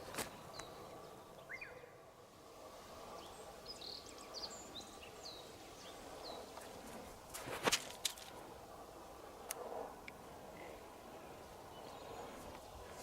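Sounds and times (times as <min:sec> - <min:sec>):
birds chirping faintly: 0:00.0 - 0:07.3, 0:10.1 - 0:13.0.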